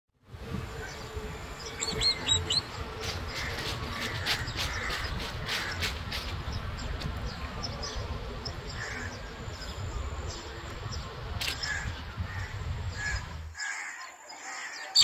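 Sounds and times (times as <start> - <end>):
songbirds chirping: 0.3 - 15.0.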